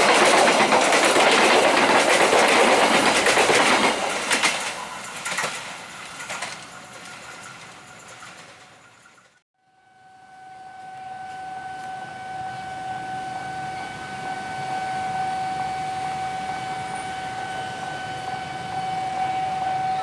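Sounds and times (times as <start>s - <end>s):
rail noise: 0.0s - 20.0s
level-crossing warning alarm tone: 10.0s - 20.0s.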